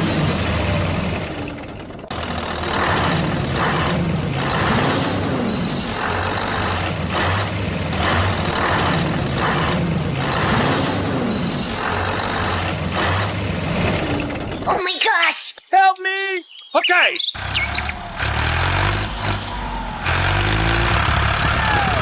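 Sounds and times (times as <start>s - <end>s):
truck engine humming: 0.0s - 14.8s, 17.2s - 22.0s.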